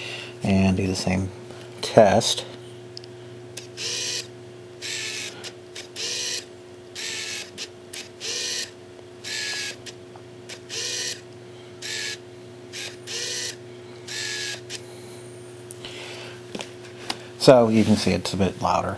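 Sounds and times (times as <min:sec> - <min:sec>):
lens autofocus motor buzzing: 0:03.6 - 0:14.9.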